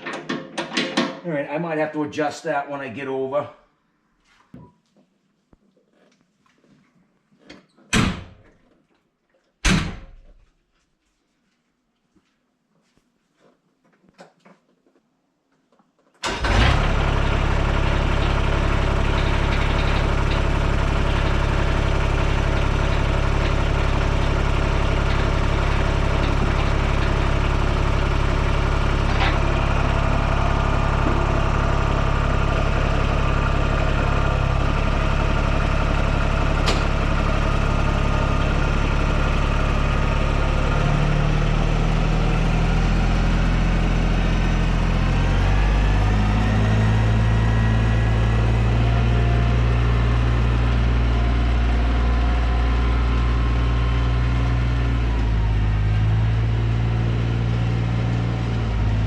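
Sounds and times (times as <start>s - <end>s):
tractor diesel engine running: 16.2s - 59.0s.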